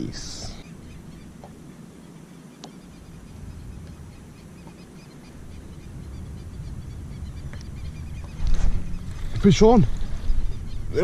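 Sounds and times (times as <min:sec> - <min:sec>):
low rumble: 0:02.8 - 0:11.0.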